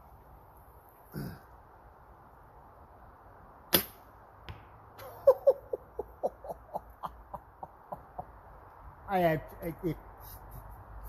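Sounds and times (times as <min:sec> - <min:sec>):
bow string snap: 0:03.7 - 0:04.0.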